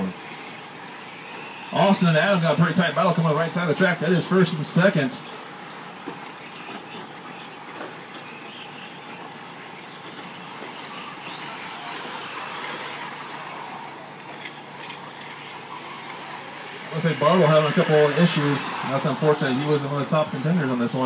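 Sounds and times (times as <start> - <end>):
small motors whirring: 0.0 - 21.0.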